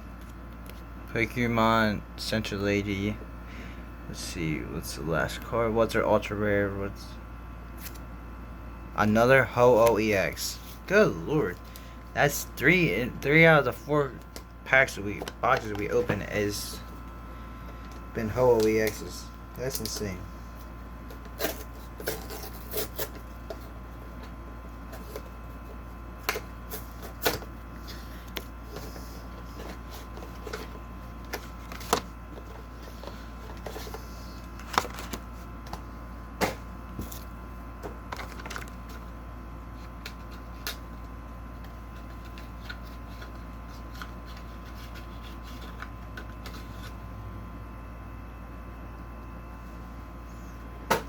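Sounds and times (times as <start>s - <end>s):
steady low hum: 0.0s - 51.0s
trading cards handled: 19.6s - 39.1s, 39.7s - 47.0s.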